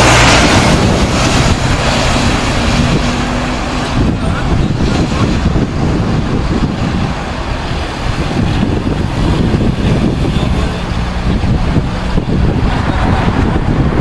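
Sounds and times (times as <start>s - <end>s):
jet airliner engines: 0.0s - 14.0s
wind buffeting microphone: 0.0s - 14.0s.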